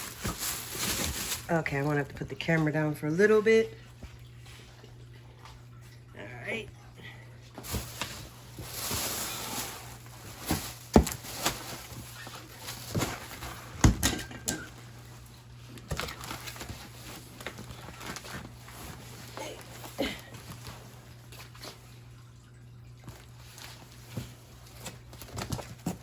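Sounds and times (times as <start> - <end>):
package rustling: 0.0 - 1.6, 7.6 - 13.8, 15.0 - 21.8.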